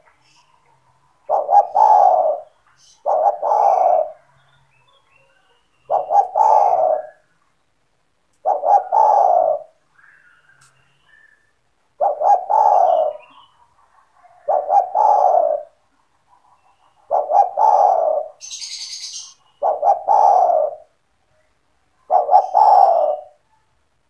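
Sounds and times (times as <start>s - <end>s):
dove cooing: 0.0s - 4.4s, 5.2s - 7.3s, 8.4s - 11.4s, 12.0s - 21.0s, 22.0s - 23.4s.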